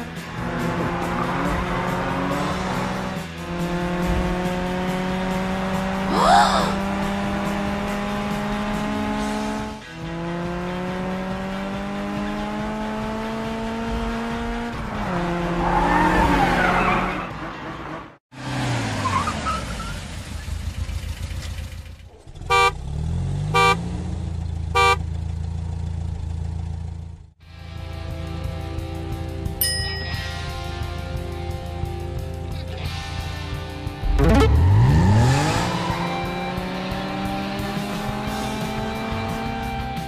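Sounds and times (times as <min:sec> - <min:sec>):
car engine revving: 0:00.0 - 0:27.3, 0:31.1 - 0:40.0
low engine hum: 0:20.3 - 0:29.4
car horn honks: 0:22.4 - 0:22.9, 0:23.5 - 0:23.9, 0:24.7 - 0:25.1.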